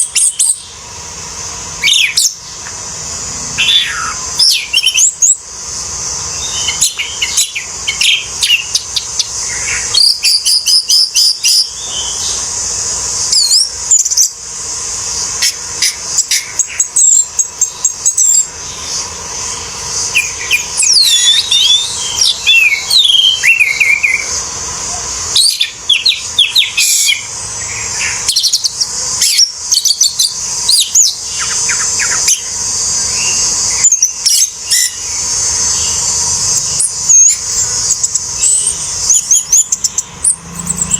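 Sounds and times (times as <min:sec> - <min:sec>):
thrush singing whistled phrases: 0:03.6 - 0:05.5, 0:06.3 - 0:12.5, 0:13.3 - 0:14.4, 0:19.6 - 0:24.6, 0:25.3 - 0:40.9.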